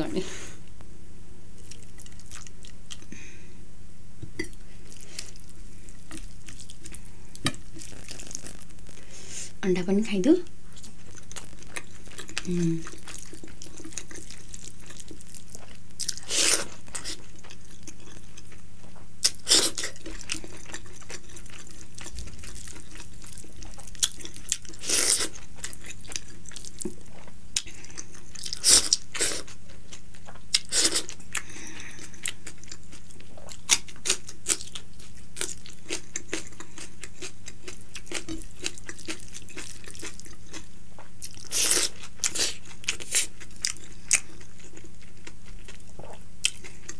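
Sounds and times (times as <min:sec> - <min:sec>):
person chewing and biting food: 0:10.7 - 0:18.6, 0:19.2 - 0:46.9.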